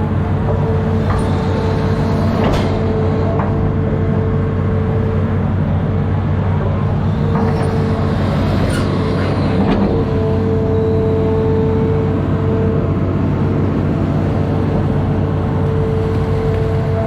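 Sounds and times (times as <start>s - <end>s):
excavator diesel engine running: 0.0s - 17.0s
steady whine: 0.0s - 17.0s.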